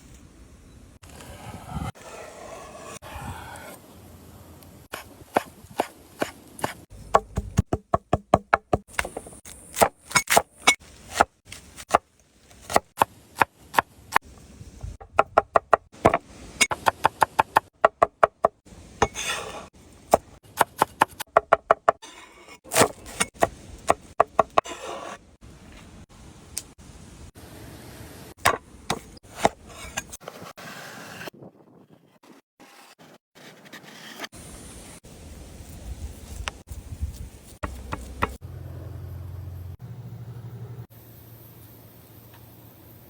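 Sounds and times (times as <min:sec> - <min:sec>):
knife chopping on cutting board: 0:37.6 - 0:38.4.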